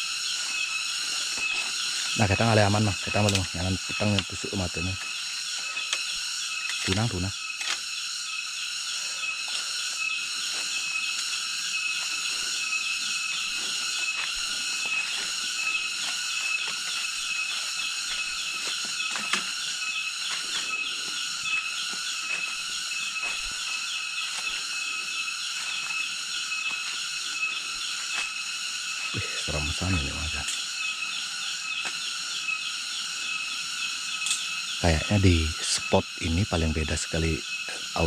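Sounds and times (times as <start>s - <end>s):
cicadas shrilling: 0.0s - 38.0s.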